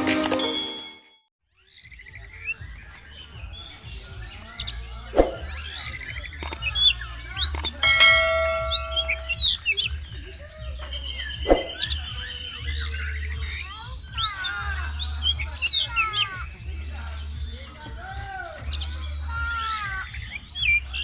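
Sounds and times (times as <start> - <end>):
magpie-robin singing whistles: 1.6 - 21.0.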